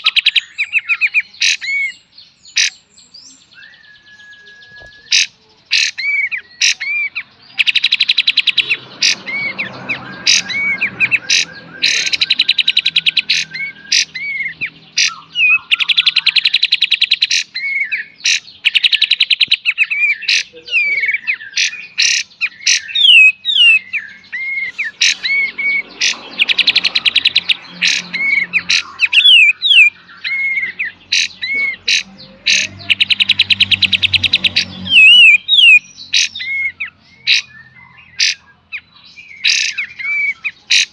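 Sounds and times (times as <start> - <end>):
sharp whistled bird notes: 3.2 - 31.7
snapping bird calls: 4.6 - 38.4, 39.4 - 40.9.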